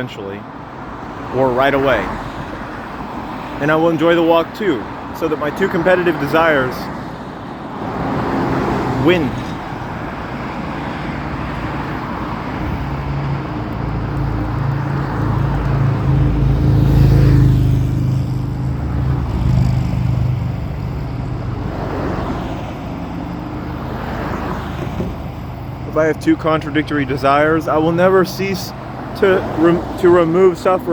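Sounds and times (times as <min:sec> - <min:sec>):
vehicle passing by: 0:07.7 - 0:30.9.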